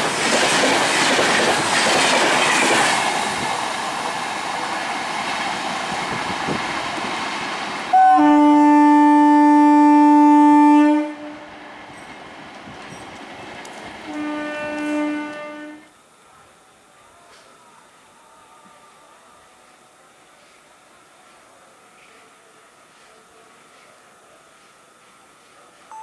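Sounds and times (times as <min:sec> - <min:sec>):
train rushing past: 0:00.0 - 0:15.9
locomotive horn blasts: 0:07.9 - 0:11.5, 0:14.1 - 0:15.9.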